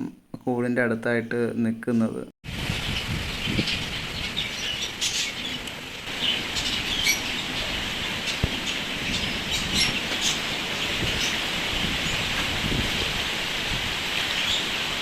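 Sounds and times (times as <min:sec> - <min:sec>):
small birds chirping: 0:02.7 - 0:13.0, 0:14.1 - 0:15.0.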